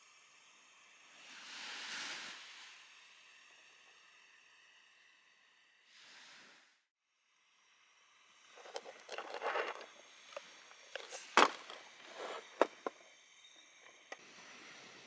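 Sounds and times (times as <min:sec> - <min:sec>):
sharp clicks and knocks: 0:08.6 - 0:13.0
objects rustling and scraping: 0:08.6 - 0:13.1.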